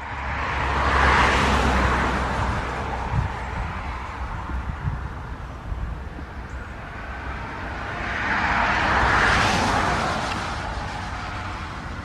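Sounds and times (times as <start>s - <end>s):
jet airliner passing: 6.8s - 12.0s.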